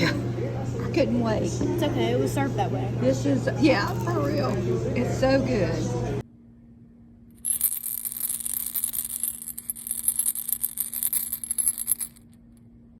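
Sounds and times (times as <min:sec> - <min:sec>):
high jingling rattle: 0:07.4 - 0:12.3.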